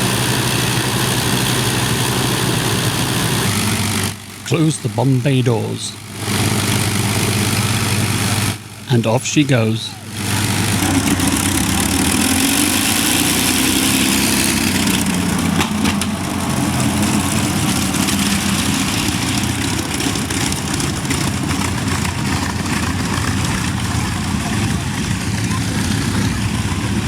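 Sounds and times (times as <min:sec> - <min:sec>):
propeller aircraft engines droning: 0:00.0 - 0:27.0.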